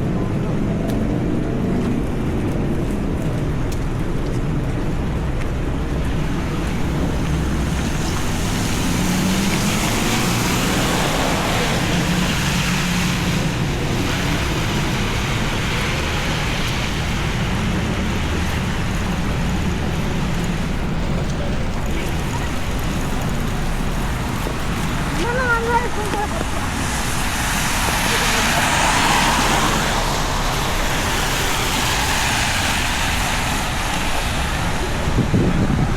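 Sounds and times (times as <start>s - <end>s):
city traffic: 0.0s - 35.9s
heavy rain: 0.0s - 35.9s
vehicle passing on wet road: 0.0s - 35.9s.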